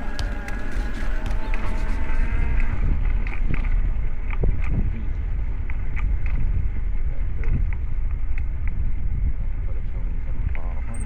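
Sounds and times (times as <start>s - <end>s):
bicycle clicks and rattles: 0.0s - 2.1s
wind buffeting microphone: 0.0s - 11.0s.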